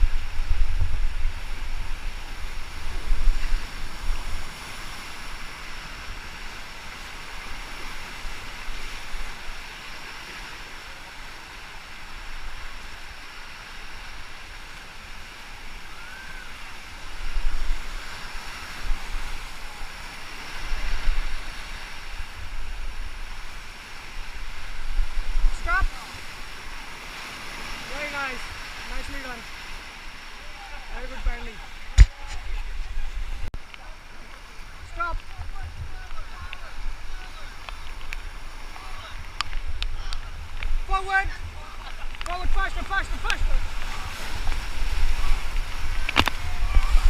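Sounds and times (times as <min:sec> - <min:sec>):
wind buffeting microphone: 0:00.0 - 0:05.2, 0:34.6 - 0:47.0
river water rushing: 0:00.0 - 0:47.0.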